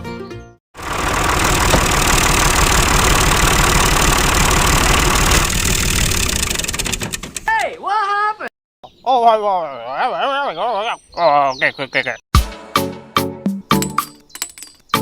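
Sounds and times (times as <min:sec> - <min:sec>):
small motor pulsing rattle: 0:00.8 - 0:07.5.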